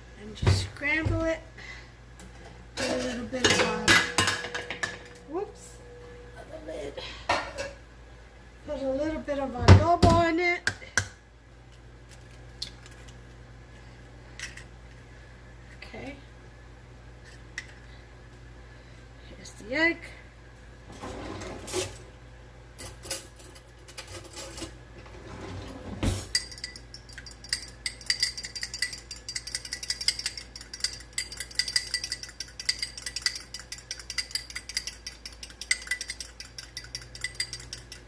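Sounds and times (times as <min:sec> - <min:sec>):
fork beating egg in bowl: 0:26.3 - 0:38.0.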